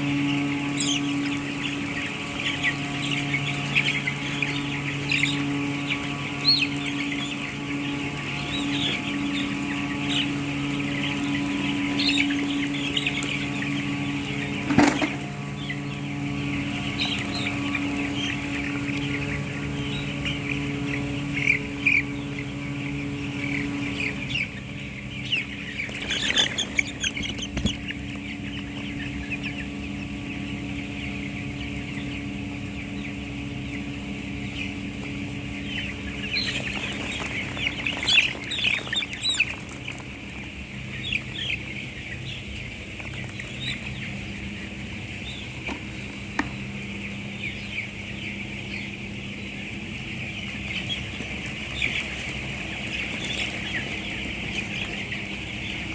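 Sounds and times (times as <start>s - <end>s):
chicks peeping: 0.0s - 55.9s
steady low hum: 0.0s - 55.9s.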